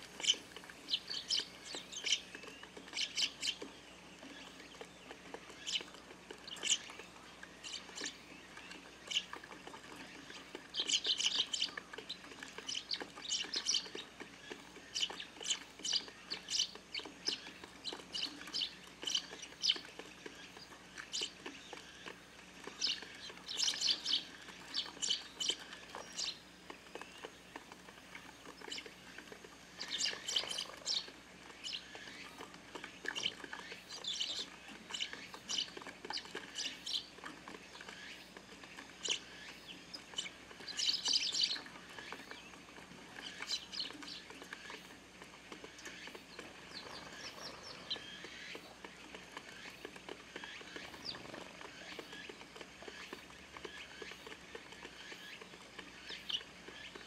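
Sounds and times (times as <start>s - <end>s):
sparrows chirping: 0.0s - 45.0s, 45.6s - 57.0s.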